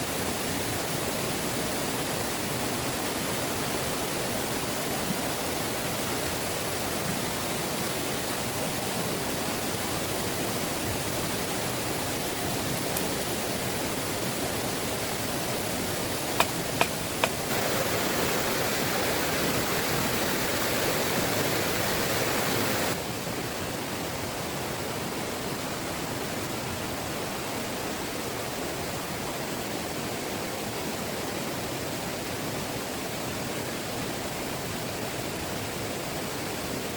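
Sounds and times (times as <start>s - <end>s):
heavy rain falling: 11.3s - 23.0s
sharp clicks: 16.3s - 18.0s.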